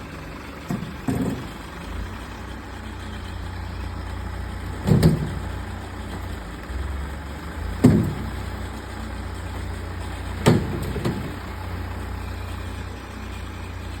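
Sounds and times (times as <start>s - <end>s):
engine idling: 0.0s - 14.0s
heavy thuds: 4.2s - 6.6s, 7.7s - 8.7s, 10.3s - 11.9s.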